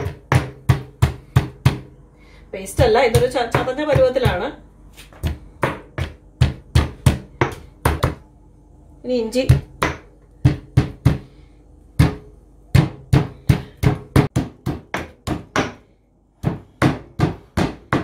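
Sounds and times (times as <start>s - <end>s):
pestle pounding in mortar: 0.0s - 2.0s, 2.8s - 4.5s, 5.2s - 8.2s, 9.5s - 11.3s, 12.0s - 15.8s, 16.4s - 18.0s.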